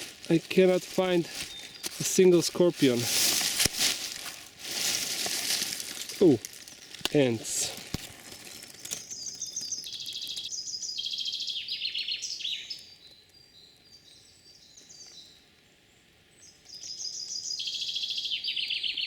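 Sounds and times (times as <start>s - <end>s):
songbird trilling: 9.0s - 12.9s.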